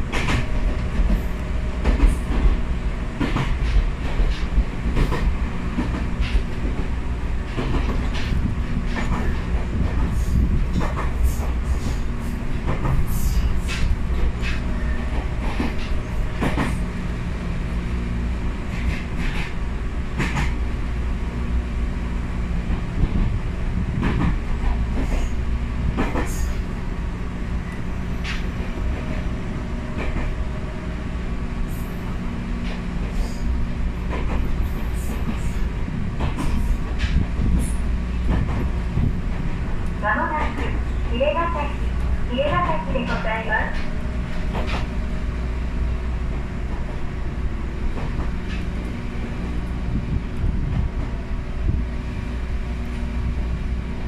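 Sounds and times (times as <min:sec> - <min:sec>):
train car rumble with low hum: 0:00.0 - 0:54.0.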